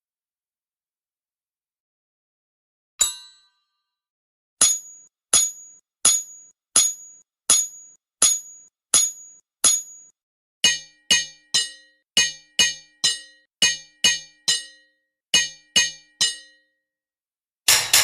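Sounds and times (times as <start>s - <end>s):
hammer striking metal: 4.6s - 16.6s, 17.7s - 18.0s.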